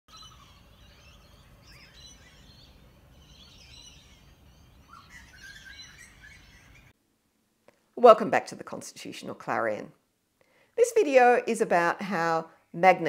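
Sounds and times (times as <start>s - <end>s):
birds chirping: 0.1s - 7.0s.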